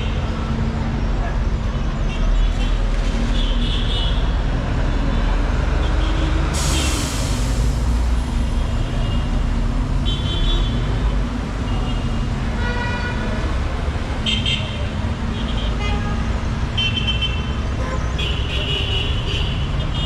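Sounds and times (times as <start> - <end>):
traffic engines rumbling: 0.0 - 20.0
brief hiss: 6.6 - 8.4.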